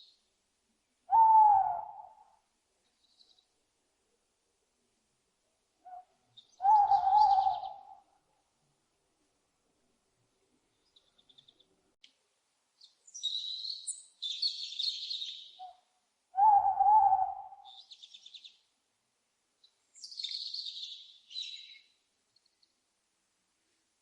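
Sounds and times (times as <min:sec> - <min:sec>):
lower owl call: 0:01.0 - 0:02.5, 0:05.8 - 0:08.4, 0:13.1 - 0:18.6, 0:20.0 - 0:22.0.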